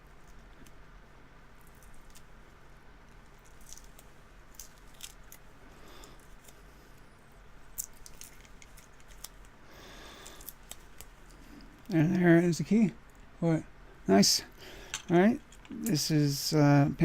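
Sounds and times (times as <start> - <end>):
tape peeling: 3.1 - 6.6, 7.7 - 12.0.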